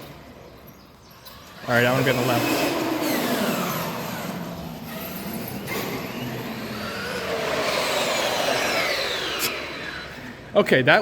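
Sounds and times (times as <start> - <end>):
electric rc car motor whine: 1.4 - 10.5.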